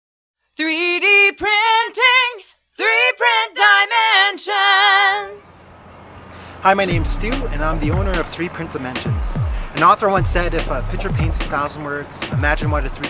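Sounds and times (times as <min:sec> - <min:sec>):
woman singing with vibrato: 0:00.6 - 0:05.4.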